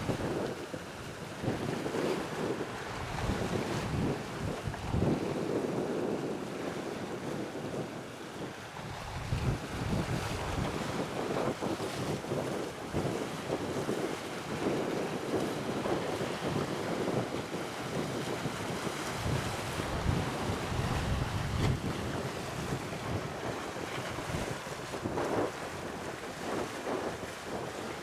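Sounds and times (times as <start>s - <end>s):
wind gusting on microphone: 0.0s - 28.0s
sea washing: 1.4s - 5.2s, 16.8s - 28.0s.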